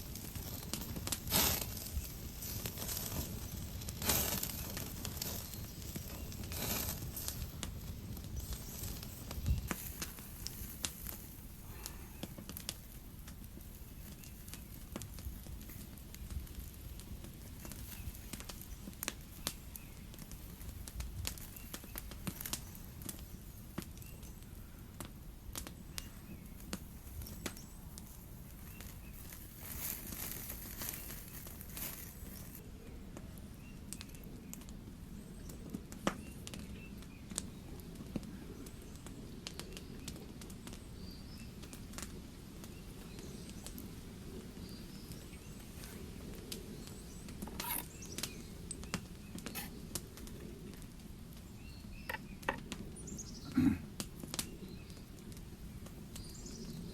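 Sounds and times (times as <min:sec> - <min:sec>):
fire hissing: 0:00.0 - 0:22.7, 0:26.8 - 0:32.6, 0:43.6 - 0:51.4
burning wood popping: 0:00.0 - 0:56.9
campfire crackling: 0:00.0 - 0:56.9.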